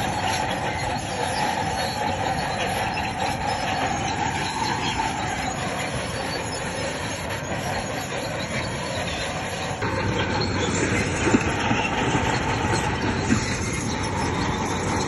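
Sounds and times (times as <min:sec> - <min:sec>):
bulldozer engine running: 0:00.0 - 0:15.0
steel tracks squealing: 0:00.0 - 0:15.0.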